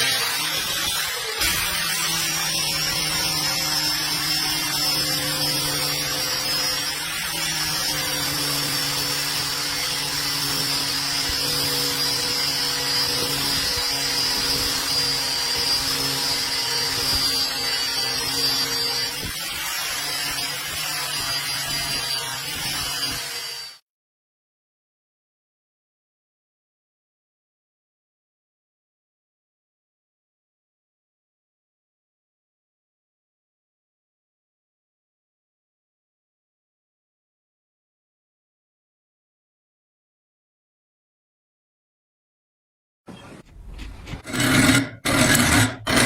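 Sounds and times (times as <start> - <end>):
electric power tool whining: 0.0 - 23.8, 43.4 - 46.0.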